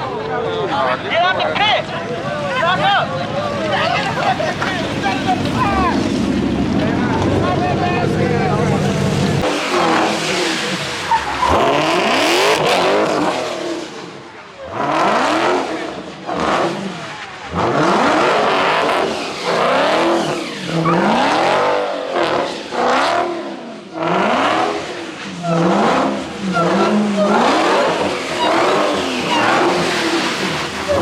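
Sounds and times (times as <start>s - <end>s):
car engine revving: 0.0s - 31.0s
loud rushing noise: 3.4s - 14.2s.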